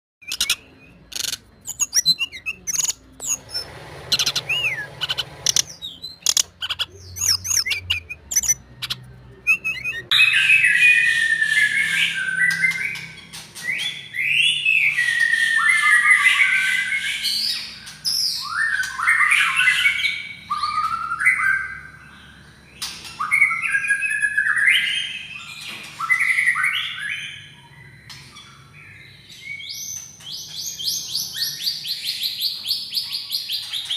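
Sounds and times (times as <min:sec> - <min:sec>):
bird singing whistled phrases: 0:00.2 - 0:22.0.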